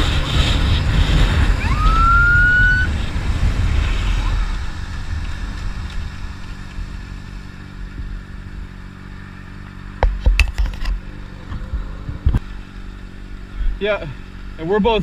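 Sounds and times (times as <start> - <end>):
motorcycle engine idling: 4.7 - 15.0
sharp knocks and clatter: 10.0 - 11.6.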